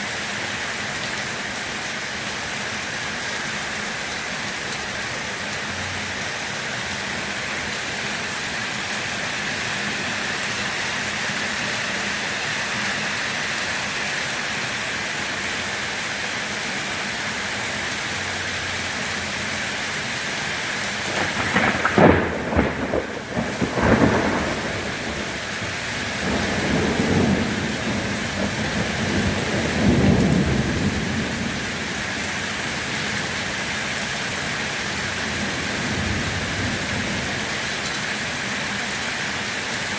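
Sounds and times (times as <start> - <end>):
steady rain: 0.0 - 39.9
thunder crack and rumbles: 21.0 - 32.1.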